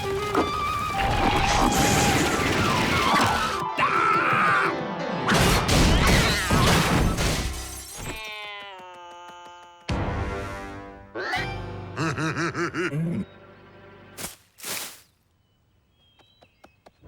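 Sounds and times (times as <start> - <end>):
busy cartoon music: 0.0 - 7.1, 9.8 - 14.2.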